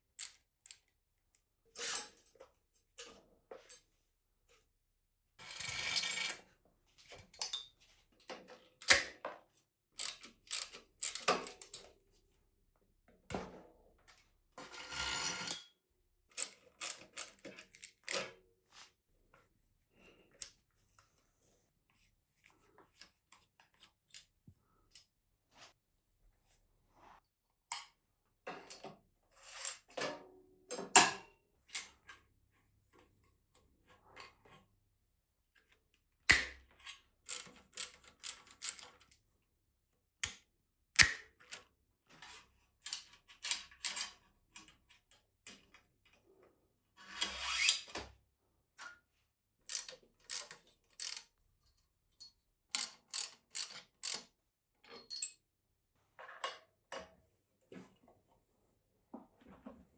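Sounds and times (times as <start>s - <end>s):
clicks and rattles of bicycle parts: 0.2s - 3.9s, 7.0s - 12.0s, 14.1s - 18.4s, 35.6s - 39.2s, 41.0s - 46.4s, 49.6s - 55.4s.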